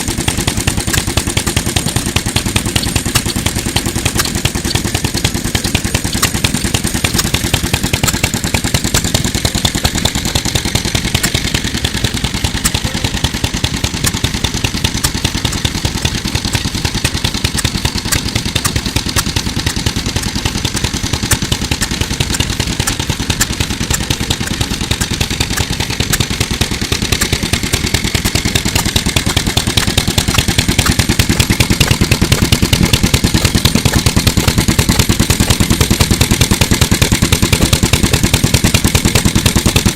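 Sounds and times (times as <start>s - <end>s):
stationary engine running: 0.0s - 39.9s.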